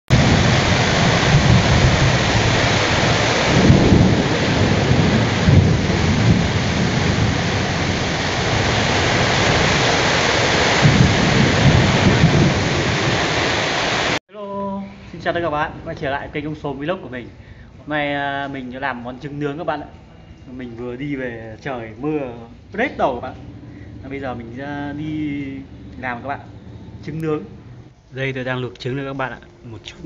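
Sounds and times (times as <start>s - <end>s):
heavy rain pouring: 0.1s - 14.2s, 18.4s - 27.6s
low rumbles: 0.1s - 14.2s, 14.9s - 30.0s.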